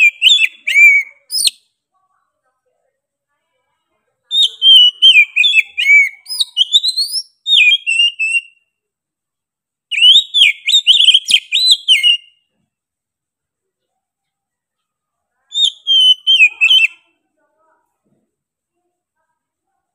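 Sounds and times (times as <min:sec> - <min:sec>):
bird singing whistled phrases: 0:00.0 - 0:01.6, 0:04.3 - 0:08.6, 0:09.9 - 0:12.4, 0:15.5 - 0:17.0.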